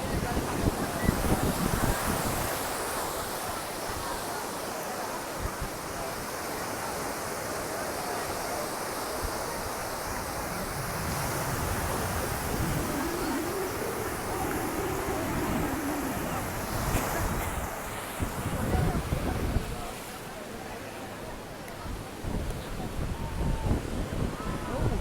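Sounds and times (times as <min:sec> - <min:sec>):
sea surf washing onto beach: 0:08.2 - 0:25.0
wind buffeting microphone: 0:10.0 - 0:19.9.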